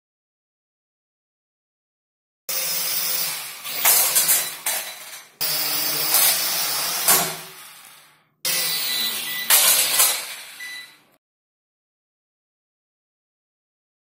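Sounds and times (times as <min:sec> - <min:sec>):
toy drone propellers whirring: 0:02.5 - 0:10.8.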